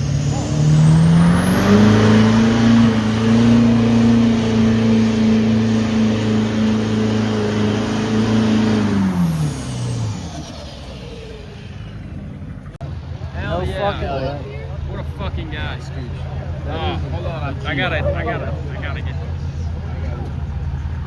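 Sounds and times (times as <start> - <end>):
truck engine revving: 0.0 - 13.2.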